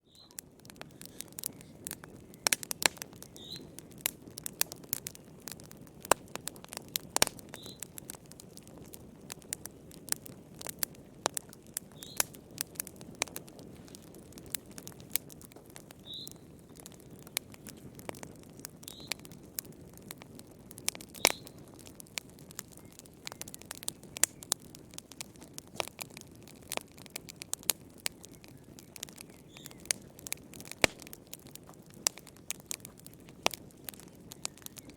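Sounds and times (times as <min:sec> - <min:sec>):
wood fire crackling and popping: 0:00.0 - 0:34.9
fire low hiss: 0:00.1 - 0:34.9.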